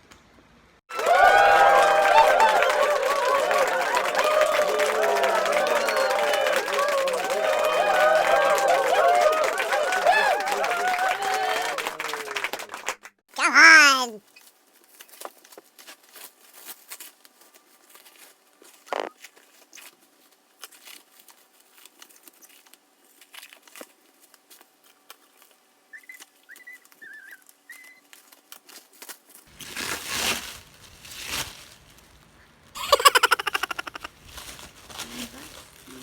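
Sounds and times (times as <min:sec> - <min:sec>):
plastic packaging crinkling: 0:28.0 - 0:36.0
plastic tearing: 0:28.1 - 0:32.3, 0:33.6 - 0:36.0.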